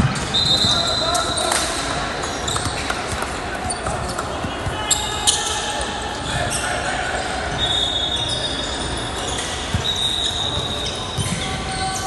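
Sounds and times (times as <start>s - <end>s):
gym background noise: 0.0s - 12.0s
shoe squeaks: 0.3s - 12.0s.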